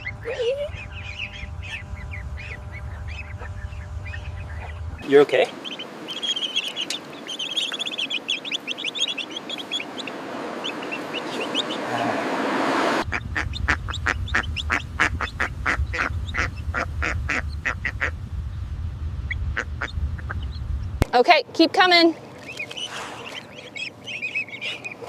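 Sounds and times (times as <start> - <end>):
duck calls: 0.0 - 12.2, 13.0 - 18.2, 22.4 - 25.0
ducklings peeping: 0.0 - 12.2, 13.0 - 18.2, 19.2 - 21.1, 22.3 - 25.0
steady low rumble: 0.0 - 25.0
rushing noise: 9.3 - 21.0.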